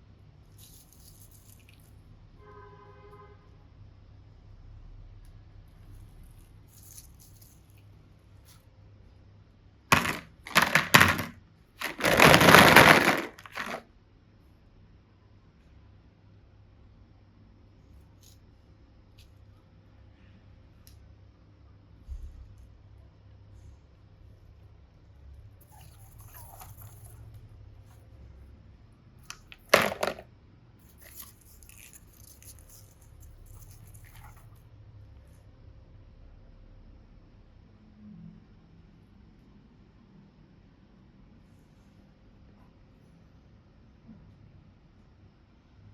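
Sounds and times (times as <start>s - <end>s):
crinkling and crunching handling: 9.9s - 13.8s, 29.2s - 34.6s
crackling crunching: 11.8s - 13.8s.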